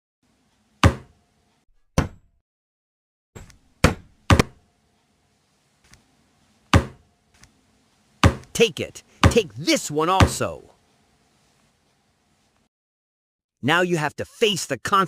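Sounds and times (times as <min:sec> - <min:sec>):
sharp knocks: 0:00.8 - 0:01.1, 0:02.0 - 0:02.3, 0:03.4 - 0:04.6, 0:06.7 - 0:07.0, 0:08.2 - 0:08.5, 0:09.2 - 0:09.5.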